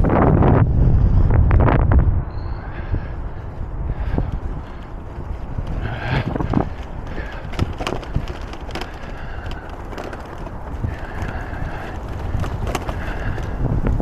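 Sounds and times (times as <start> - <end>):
wind rumbling on microphone: 0.0 - 14.0
bicycle clicks and rattles: 3.9 - 14.0.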